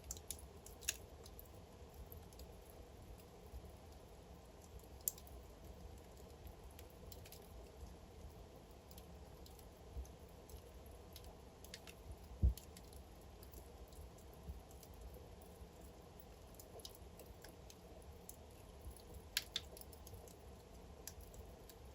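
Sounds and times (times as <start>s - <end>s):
wood fire crackling: 0.0s - 21.9s
burning logs popping: 8.8s - 14.0s, 16.2s - 20.4s.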